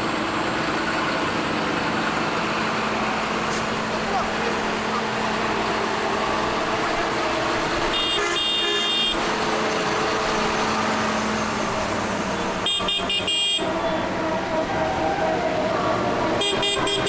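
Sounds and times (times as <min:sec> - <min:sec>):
tractor engines running: 0:00.0 - 0:17.0
horn tooting: 0:07.8 - 0:09.4, 0:12.3 - 0:17.0.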